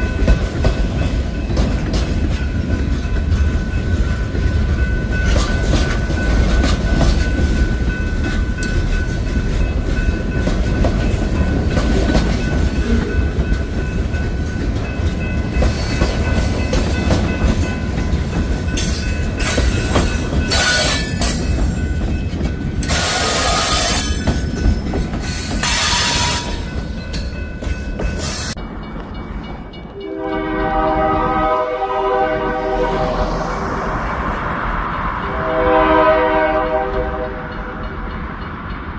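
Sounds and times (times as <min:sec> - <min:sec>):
wheels clacking over rail joints: 0:00.0 - 0:30.1
freight train rumbling: 0:00.0 - 0:38.9.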